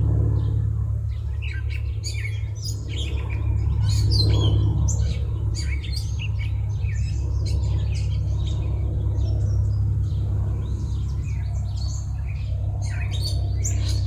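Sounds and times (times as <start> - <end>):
steady low hum: 0.0 - 14.0
small birds chirping: 0.3 - 14.0.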